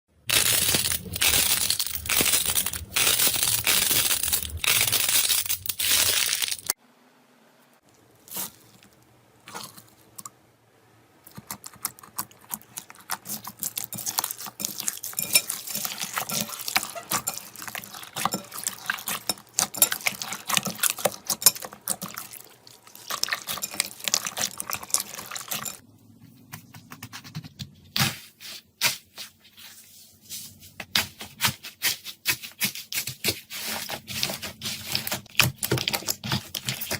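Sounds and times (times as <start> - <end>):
dense crunching of slime: 0.2 - 6.8.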